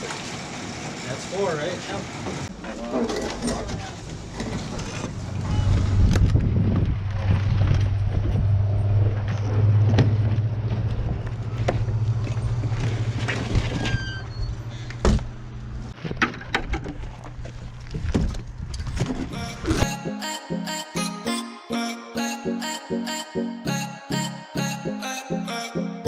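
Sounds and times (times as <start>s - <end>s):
engine running: 4.0s - 13.7s.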